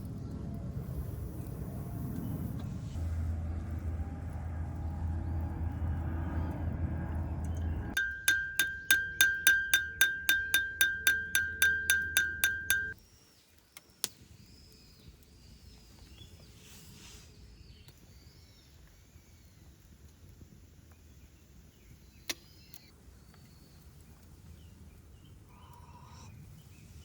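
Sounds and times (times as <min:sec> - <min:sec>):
low rumble: 0:00.0 - 0:08.0
high ringing beeps: 0:08.0 - 0:13.0
faint bird chirps: 0:24.6 - 0:27.0.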